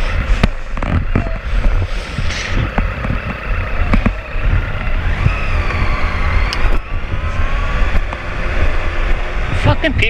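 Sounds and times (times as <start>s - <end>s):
wind rumble on microphone: 0.0s - 10.0s
motorcycle engine pulling away: 2.3s - 10.0s.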